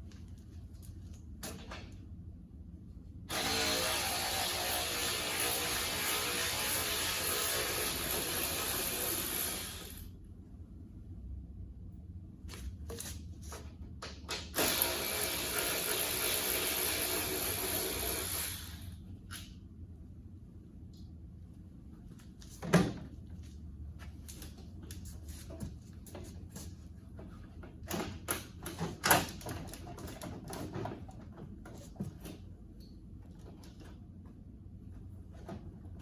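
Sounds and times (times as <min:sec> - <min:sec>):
handheld power tool running: 0:03.3 - 0:10.1, 0:14.6 - 0:18.9.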